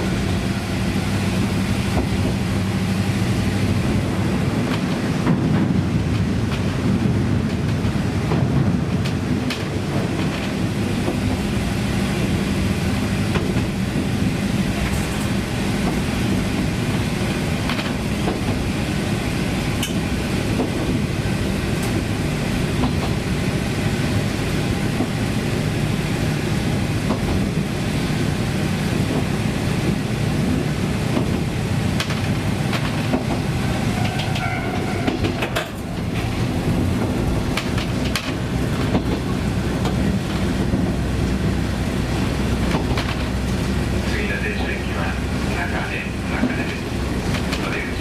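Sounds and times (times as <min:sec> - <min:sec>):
diesel railcar engine: 0:00.0 - 0:48.0
wheels clicking over rail joints: 0:19.7 - 0:21.1, 0:29.0 - 0:44.8, 0:46.2 - 0:48.0.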